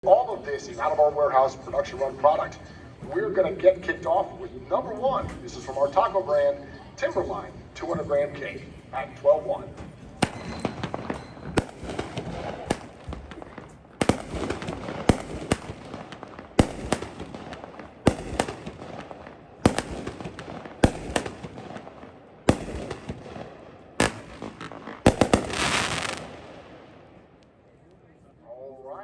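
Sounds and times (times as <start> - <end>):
fireworks shots and bursts: 10.2 - 27.3
fireworks crackling: 10.2 - 27.5.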